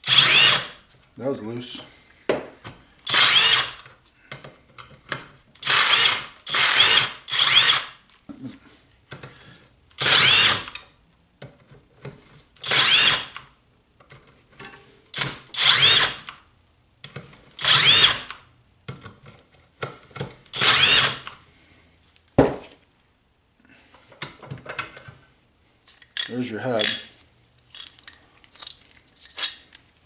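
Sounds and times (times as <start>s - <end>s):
cordless power driver spinning: 0.1s - 0.7s, 3.1s - 3.8s, 20.6s - 21.2s
sharp knock: 22.4s - 22.7s.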